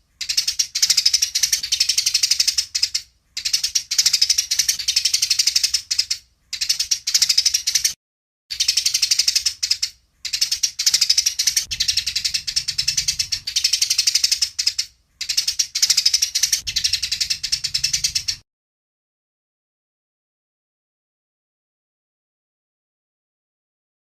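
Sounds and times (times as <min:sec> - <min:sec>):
sparrows chattering chirps: 0:00.0 - 0:18.4.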